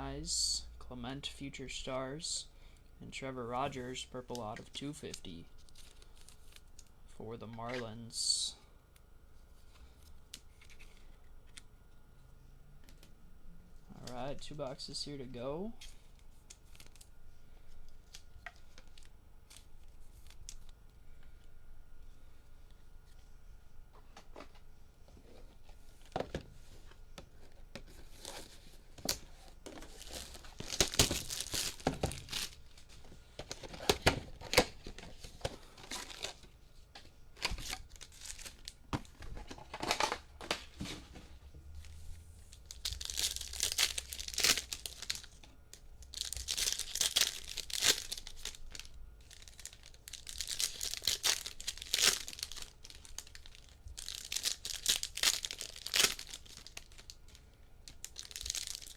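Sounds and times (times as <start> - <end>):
card pack wrappers tearing and crinkling: 15.8 - 17.1, 27.9 - 36.5, 37.4 - 38.8, 42.5 - 58.9.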